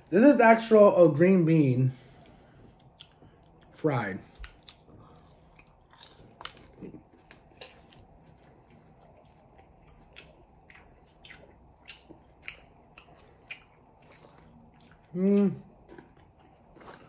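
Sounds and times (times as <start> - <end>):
person crunching fried food: 2.8 - 17.0.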